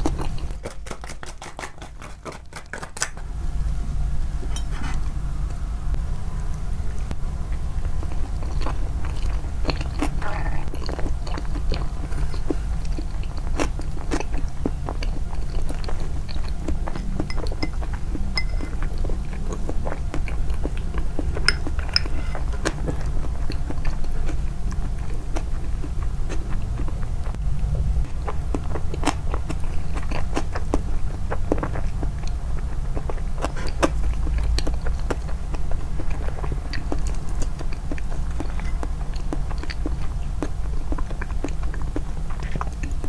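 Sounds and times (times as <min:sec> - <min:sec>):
chewing crunchy food: 0:00.0 - 0:03.3, 0:06.5 - 0:27.4, 0:28.0 - 0:43.0
low hum: 0:16.2 - 0:23.3.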